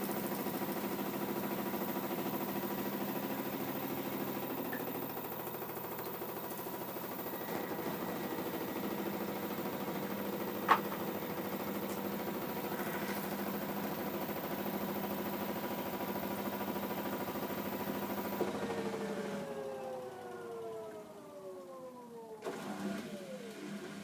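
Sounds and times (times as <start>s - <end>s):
washer-dryer humming: 0.0s - 24.0s.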